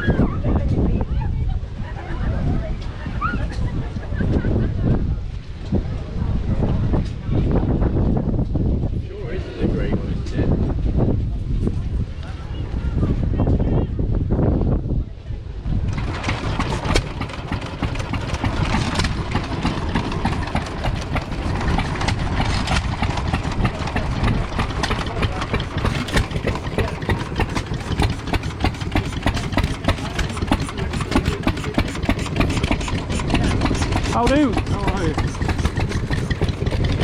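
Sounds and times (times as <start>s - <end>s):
fast dense ticking: 15.9s - 37.0s
tractor engine idling: 15.9s - 37.0s.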